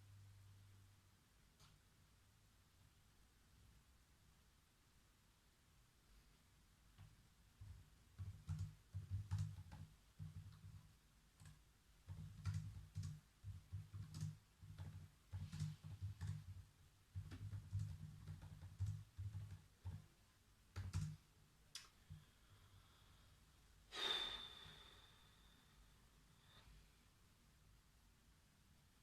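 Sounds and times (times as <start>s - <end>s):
computer keyboard typing: 7.6s - 20.1s, 20.7s - 21.2s.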